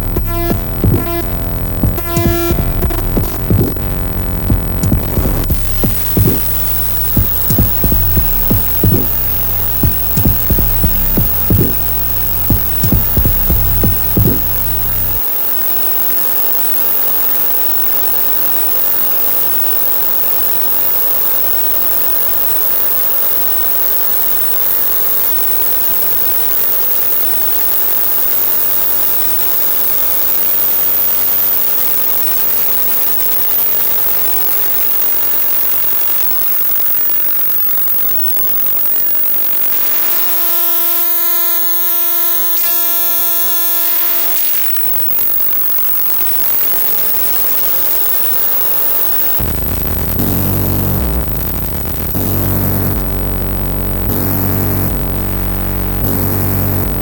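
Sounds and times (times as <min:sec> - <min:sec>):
noisy synthesizer drone: 0:00.0 - 0:15.2, 0:49.4 - 0:57.0.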